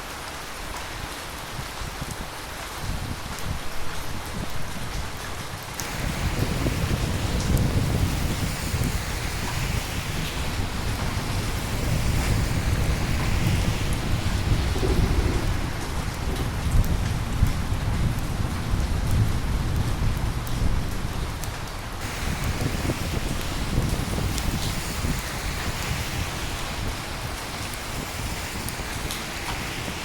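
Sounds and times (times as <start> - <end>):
steady rain: 0.0 - 30.0
low rumble of thunder: 10.3 - 21.4.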